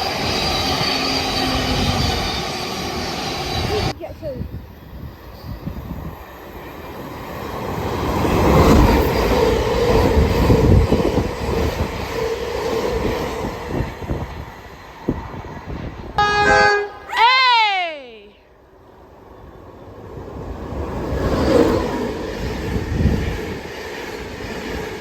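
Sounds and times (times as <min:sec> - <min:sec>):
train wheel whine: 0:00.0 - 0:17.0, 0:18.7 - 0:25.0
electric train passing: 0:00.0 - 0:17.2, 0:18.6 - 0:25.0.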